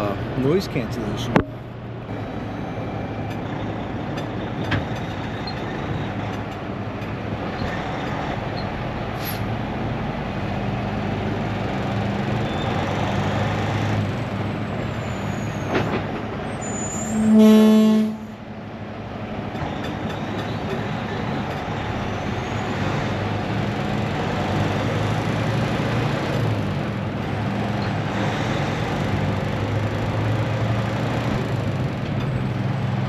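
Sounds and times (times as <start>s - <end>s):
road noise: 0.0s - 33.0s
truck diesel engine driving: 0.0s - 33.0s
truck horn toot: 16.8s - 18.4s.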